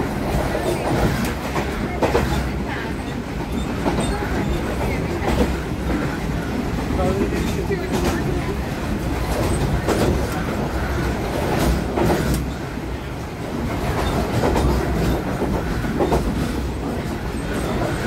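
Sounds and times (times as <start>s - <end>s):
train carriage rumble and rattle: 0.0s - 18.0s.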